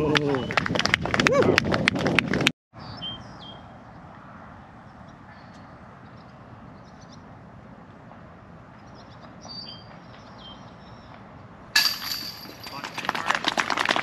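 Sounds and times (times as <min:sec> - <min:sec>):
small birds chirping: 0:02.8 - 0:04.1, 0:04.8 - 0:07.4, 0:08.7 - 0:11.4
steady outdoor hiss: 0:02.8 - 0:14.0.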